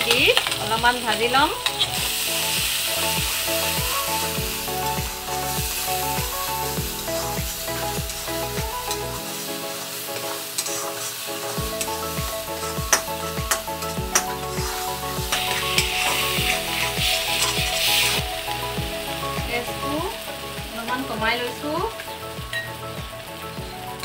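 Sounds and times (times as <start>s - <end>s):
background music with beat: 0.0s - 24.0s
paste sizzling in hot oil: 0.0s - 24.0s
spatula scraping pan: 7.0s - 18.2s.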